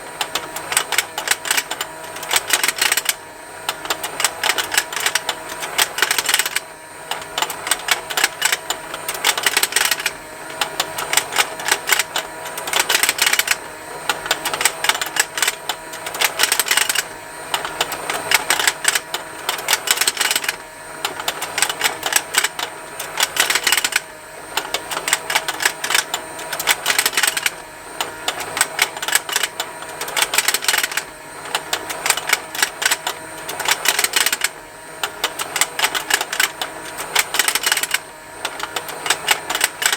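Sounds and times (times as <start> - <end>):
toy motor and gears ticking: 0.2 - 39.9.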